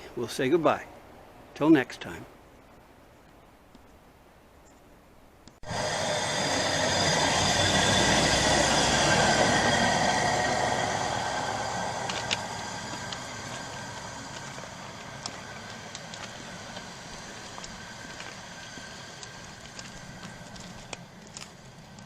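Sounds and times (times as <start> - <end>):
high ringing of rails: 5.6 - 22.0
rail vehicle rumbling past: 5.6 - 22.0.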